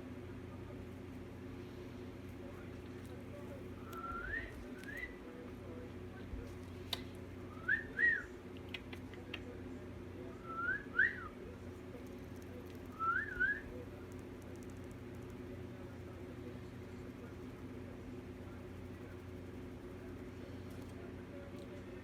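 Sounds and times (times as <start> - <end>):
steady low hum: 0.0 - 22.0
cockatiel whistling: 12.9 - 13.6.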